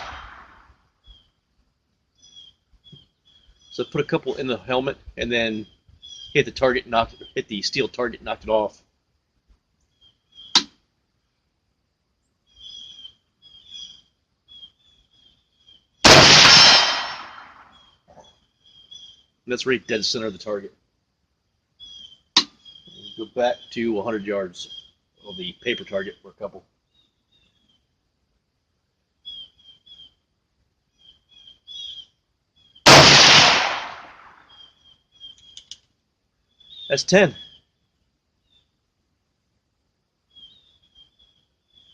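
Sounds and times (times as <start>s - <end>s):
rifle shot with echo: 0.0s - 0.6s, 16.0s - 17.8s, 32.9s - 34.4s
small birds chirping: 0.0s - 8.9s, 9.5s - 11.4s, 12.2s - 28.4s, 29.0s - 39.0s, 40.2s - 41.9s.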